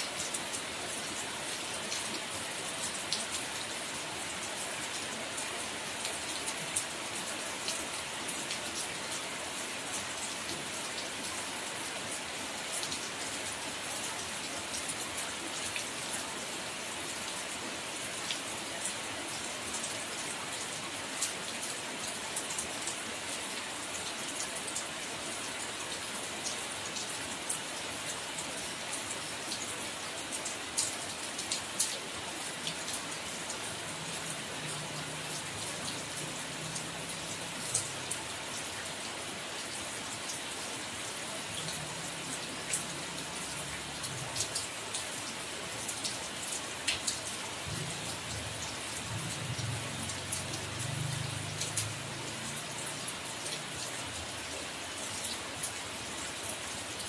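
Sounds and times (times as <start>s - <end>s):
steady rain hiss: 0.0s - 57.0s
rain drops ticking: 17.5s - 57.0s.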